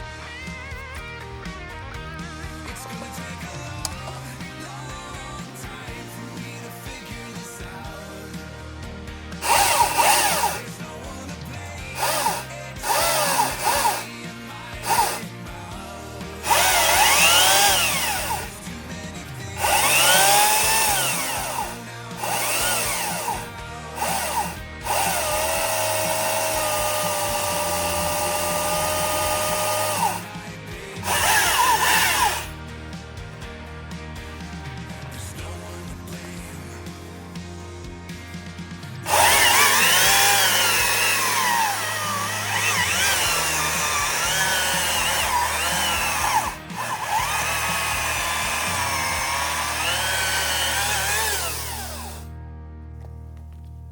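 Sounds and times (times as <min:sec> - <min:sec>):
background music: 0:00.0 - 0:53.9
electric chainsaw motor whining: 0:03.3 - 0:32.6, 0:39.0 - 0:52.3.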